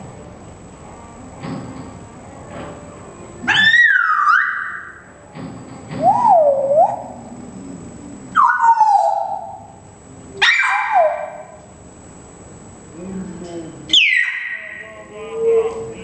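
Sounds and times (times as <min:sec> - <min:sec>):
animal wavering cries: 0:03.4 - 0:05.1, 0:06.0 - 0:07.5, 0:08.3 - 0:09.8, 0:10.4 - 0:11.6, 0:13.9 - 0:16.0.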